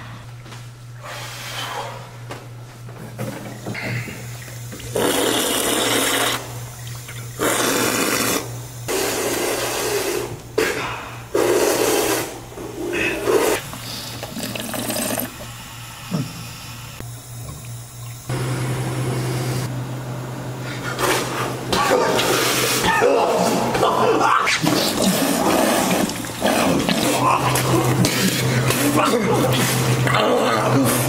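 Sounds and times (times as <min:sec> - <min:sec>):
drinking fountain water jet: 0:03.4 - 0:10.2, 0:13.3 - 0:19.7, 0:24.5 - 0:30.2.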